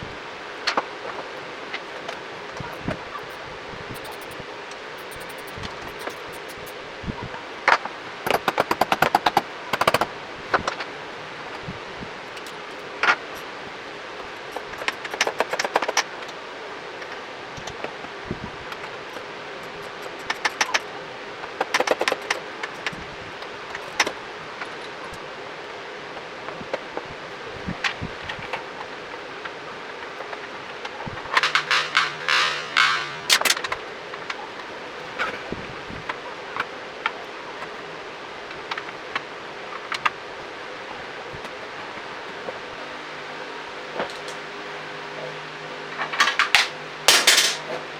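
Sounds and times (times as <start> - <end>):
faint steady hum: 0.0 - 47.9
steady background hiss: 0.0 - 47.9
small parts and tools clicking: 2.0 - 6.8, 8.3 - 10.1, 14.5 - 16.4, 18.7 - 20.9, 21.5 - 23.0, 31.3 - 33.8.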